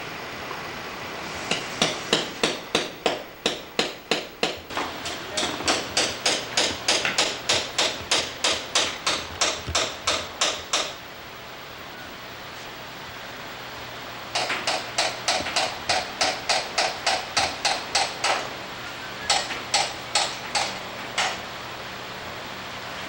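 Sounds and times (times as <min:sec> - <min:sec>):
hammer striking: 0:01.5 - 0:11.0, 0:14.4 - 0:18.5, 0:19.3 - 0:21.4.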